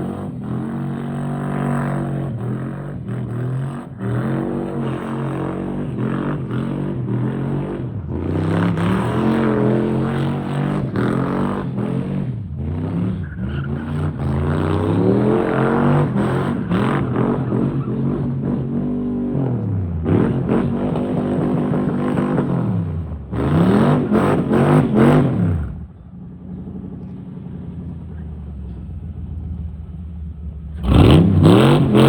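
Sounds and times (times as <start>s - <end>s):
truck engine revving: 30.7s - 32.0s.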